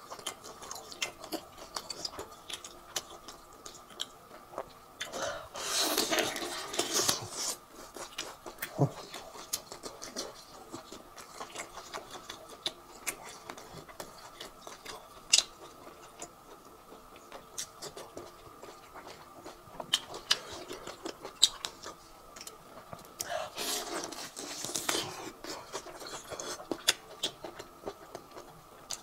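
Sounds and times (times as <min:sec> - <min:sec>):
faint steady hum: 0:00.0 - 0:29.0
wet chewing and lip smacks: 0:06.4 - 0:29.0.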